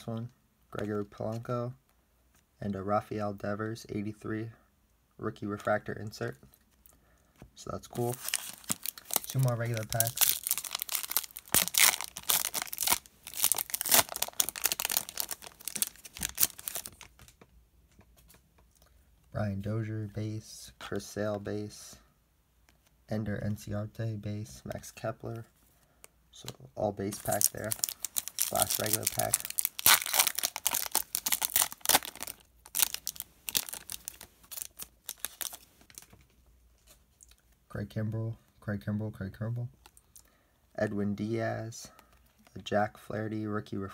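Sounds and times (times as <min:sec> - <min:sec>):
wrapper tearing and crinkling: 0:08.0 - 0:17.3, 0:27.1 - 0:36.2.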